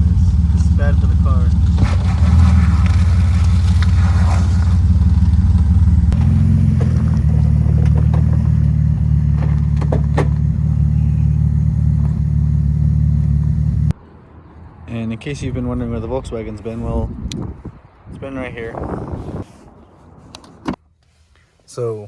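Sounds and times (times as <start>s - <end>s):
car engine droning: 0.0s - 14.2s.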